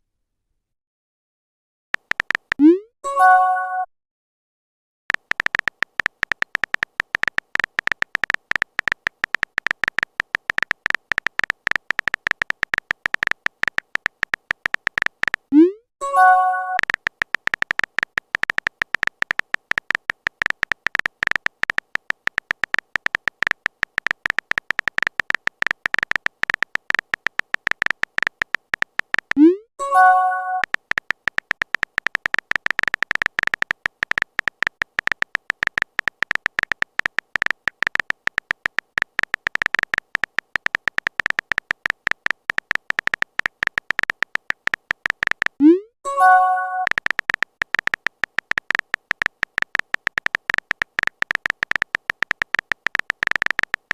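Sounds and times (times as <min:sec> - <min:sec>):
typing clicks sound effect: 0:02.0 - 0:03.9, 0:05.1 - 0:53.9
message chime: 0:03.1 - 0:03.9, 0:16.0 - 0:16.8, 0:29.8 - 0:30.6, 0:45.7 - 0:46.9.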